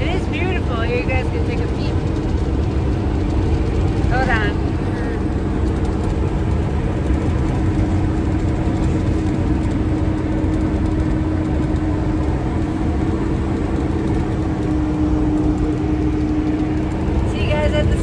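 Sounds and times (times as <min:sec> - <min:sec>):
motorhome engine and road noise: 0:00.0 - 0:18.0.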